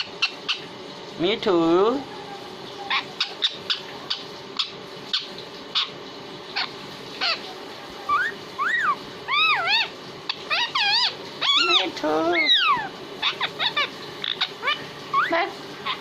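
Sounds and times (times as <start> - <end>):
parrot rising and falling calls: 8.1 - 16.0.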